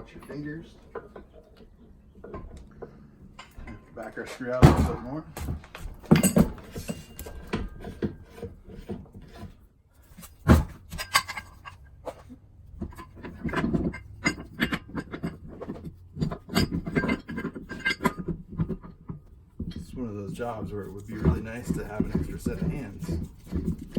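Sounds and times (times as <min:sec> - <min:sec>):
metal parts clinking and knocking: 0:00.2 - 0:09.5, 0:10.1 - 0:12.2, 0:12.8 - 0:19.9.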